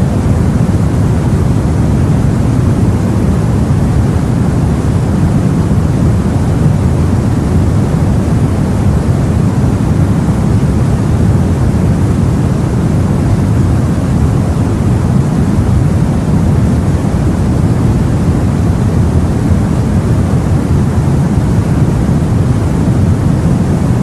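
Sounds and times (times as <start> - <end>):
deep rumble of sea: 0.0 - 24.0.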